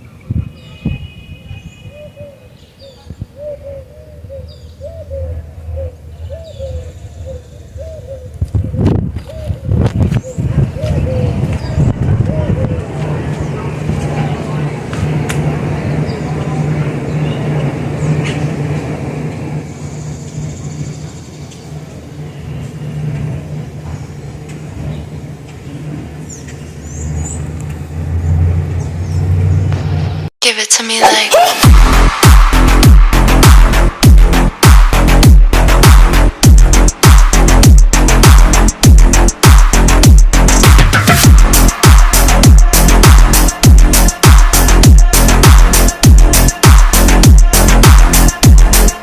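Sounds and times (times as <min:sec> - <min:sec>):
dove cooing: 0:01.9 - 0:13.0
steady low rumble: 0:04.3 - 0:30.3, 0:31.6 - 0:49.0
jet engines rumbling: 0:11.2 - 0:30.3
small birds chirping: 0:19.6 - 0:23.0.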